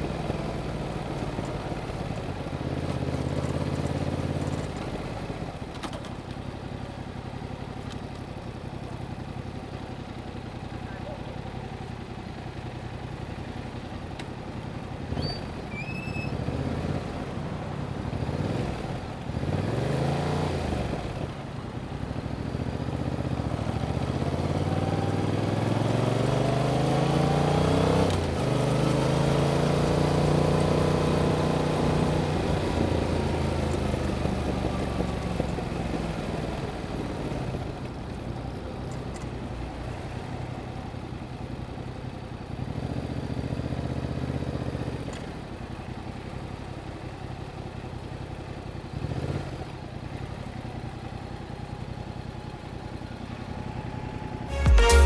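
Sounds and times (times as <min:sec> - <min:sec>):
motorcycle engine revving: 0:16.3 - 0:21.2, 0:22.0 - 0:36.5.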